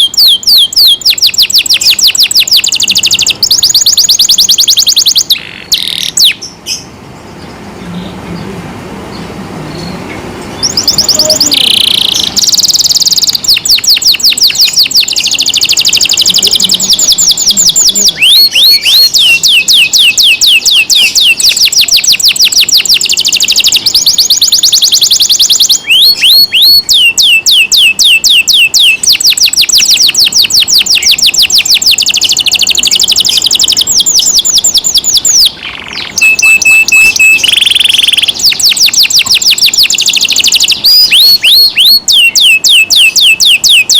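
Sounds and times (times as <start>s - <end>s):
canary singing trills: 0.0s - 43.9s
canary held whistle: 10.6s - 35.5s, 36.2s - 43.9s.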